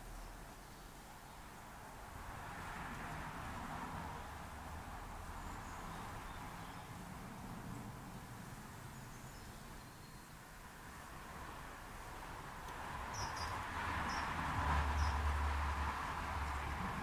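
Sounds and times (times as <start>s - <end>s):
faint high bird chirps: 13.1s - 14.3s.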